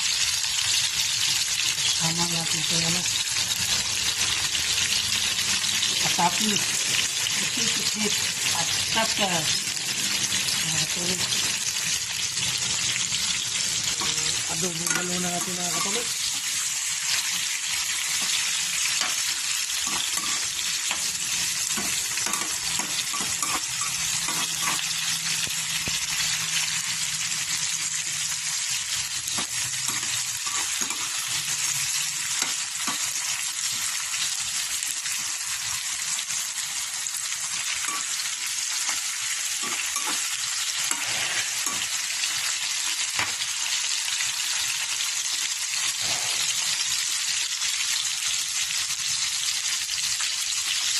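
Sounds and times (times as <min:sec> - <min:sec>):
vegetables sizzling in oil: 0:00.0 - 0:50.9
spatula clicking and scraping: 0:18.1 - 0:24.9, 0:29.3 - 0:31.3, 0:37.6 - 0:41.9.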